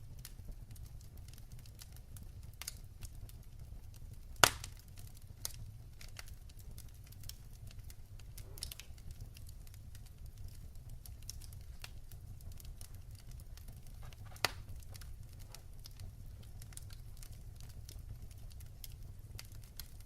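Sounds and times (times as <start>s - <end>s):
wood fire crackling: 0.0s - 20.0s
loud pop from fire: 4.4s - 4.8s, 8.3s - 9.0s, 13.9s - 15.7s.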